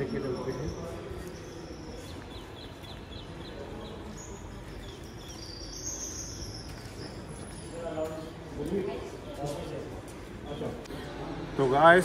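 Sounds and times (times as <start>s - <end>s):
small bird chirping: 0.0s - 7.7s
outdoor background noise: 0.0s - 12.0s.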